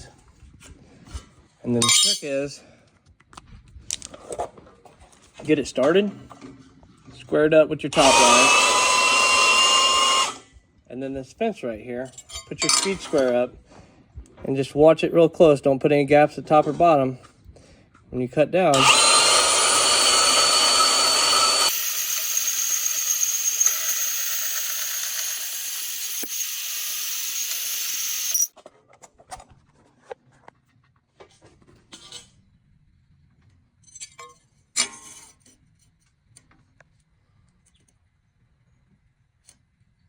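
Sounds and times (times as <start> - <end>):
bandsaw cutting wood: 8.0 - 10.4, 18.7 - 28.5.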